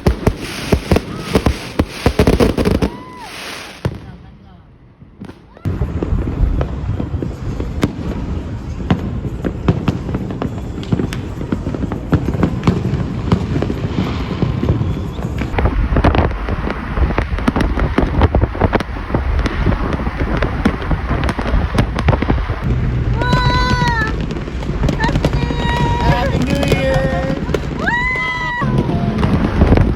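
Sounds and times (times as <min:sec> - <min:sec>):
fireworks bangs and crackles: 0:00.0 - 0:29.9
low rumble: 0:15.3 - 0:29.9.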